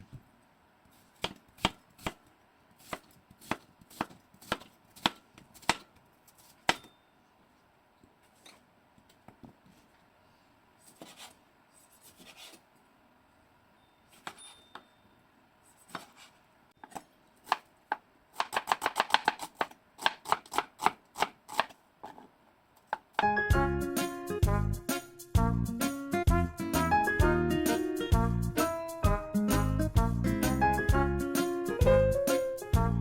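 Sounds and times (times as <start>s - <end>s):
knife chopping on cutting board: 1.2s - 2.2s, 2.8s - 6.9s, 15.9s - 16.2s, 18.4s - 21.7s.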